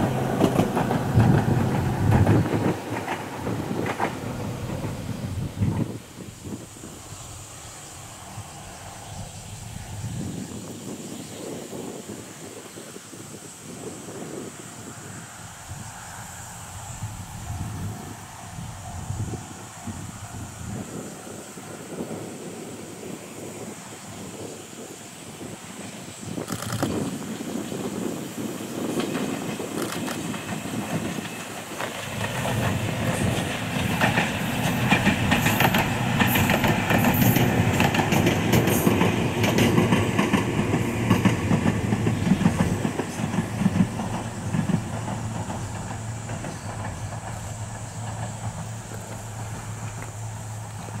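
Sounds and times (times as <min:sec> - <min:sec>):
train wheels clattering over joints: 0:00.0 - 0:05.9, 0:28.3 - 0:51.0.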